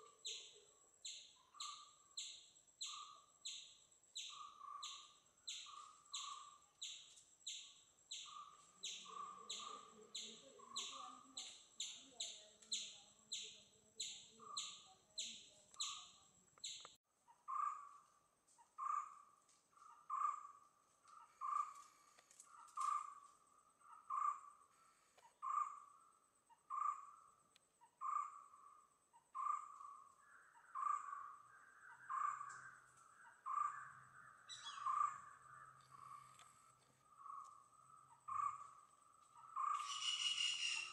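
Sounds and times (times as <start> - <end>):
high bird chirps: 0.2 - 17.9, 29.4 - 36.4, 39.4 - 40.9.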